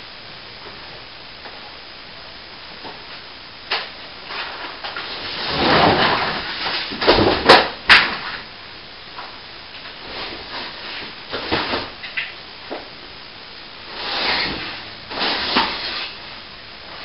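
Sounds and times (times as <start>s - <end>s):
scraping sliding noise: 13.9s - 16.2s.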